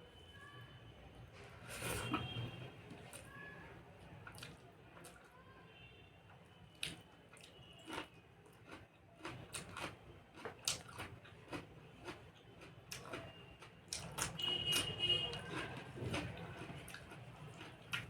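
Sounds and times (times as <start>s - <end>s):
person chewing food: 4.2s - 5.2s, 6.8s - 18.0s.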